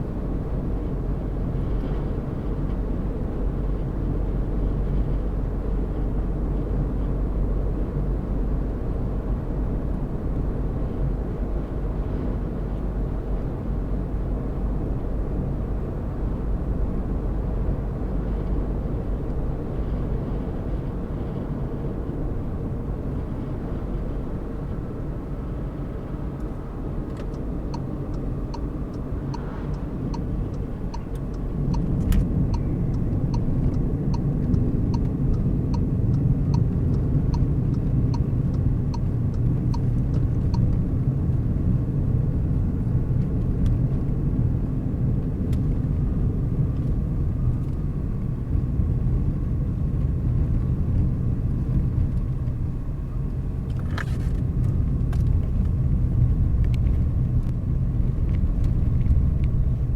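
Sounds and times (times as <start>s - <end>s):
car road and engine rumble: 0.0s - 59.9s
faint regular ticking: 27.2s - 40.8s.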